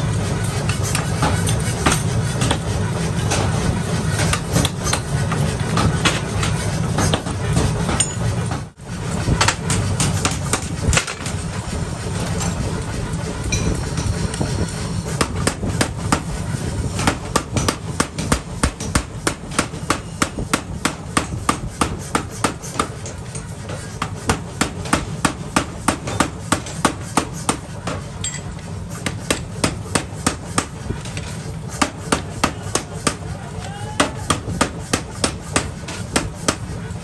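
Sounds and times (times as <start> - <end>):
steady low rumble: 0.0 - 19.6
hammer striking hot steel on anvil: 0.5 - 3.5, 7.9 - 8.2, 17.0 - 36.8.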